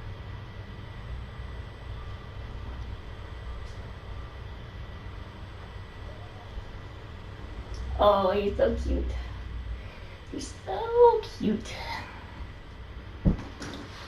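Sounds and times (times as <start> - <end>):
faint constant hum: 0.0 - 14.0.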